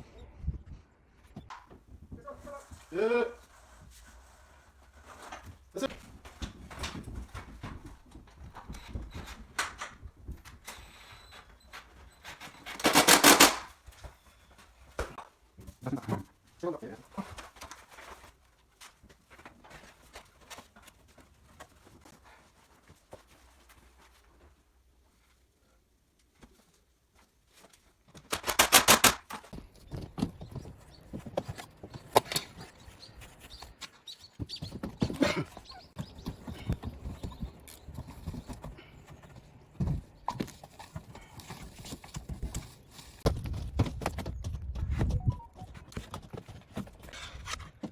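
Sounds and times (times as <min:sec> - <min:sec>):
rapid rattling clicks: 0:28.3 - 0:29.2.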